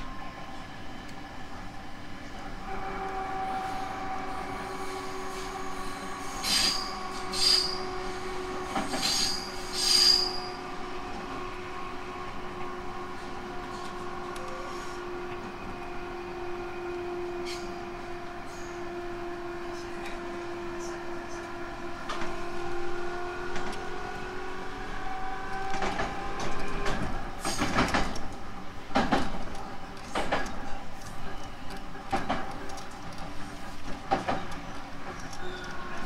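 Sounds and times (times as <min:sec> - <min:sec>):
electric train whining: 0:00.0 - 0:36.0
high-pitched wheel squeals: 0:05.0 - 0:07.9, 0:08.8 - 0:10.6.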